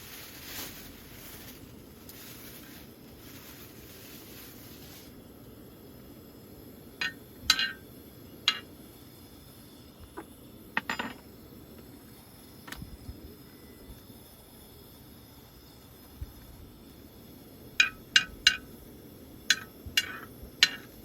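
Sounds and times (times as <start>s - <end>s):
steady low background hum: 0.0s - 21.0s
small hard objects clinking: 7.0s - 7.8s, 8.5s - 8.7s, 10.8s - 11.3s, 17.8s - 18.7s, 19.5s - 21.0s.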